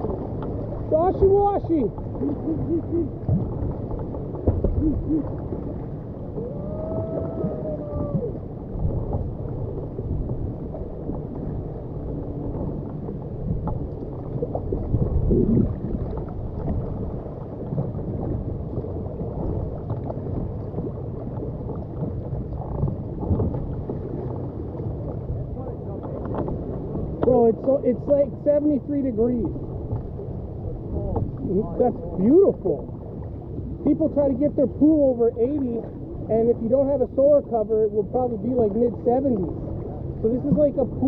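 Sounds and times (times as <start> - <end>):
water sloshing and splashing: 0.0 - 41.0
dull knocks: 4.4 - 4.8.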